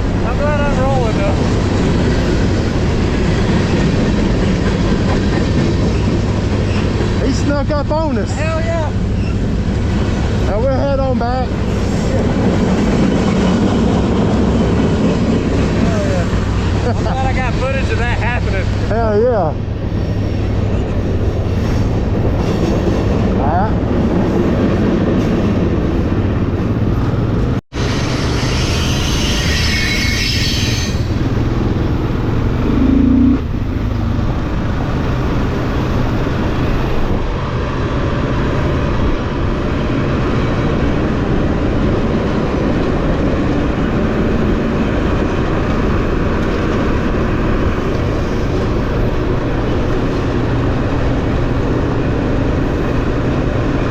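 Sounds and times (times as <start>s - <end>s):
motorcycle engine and road rumble: 30.6s - 53.9s.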